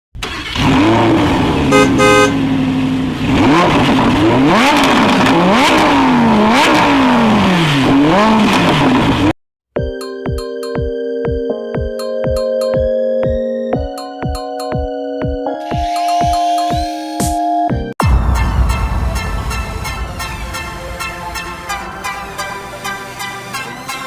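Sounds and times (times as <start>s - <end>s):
engine revving: 0.2s - 9.4s
short horn toots: 1.7s - 2.4s.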